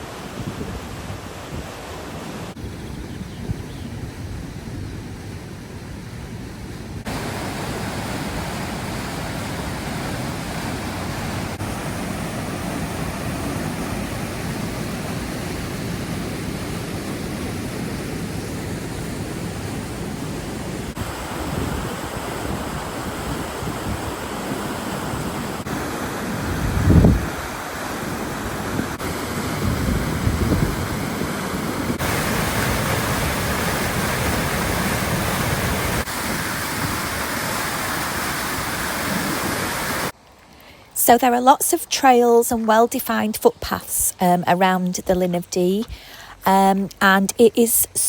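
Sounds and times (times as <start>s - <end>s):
white water rushing: 0.0s - 2.6s, 7.0s - 40.2s.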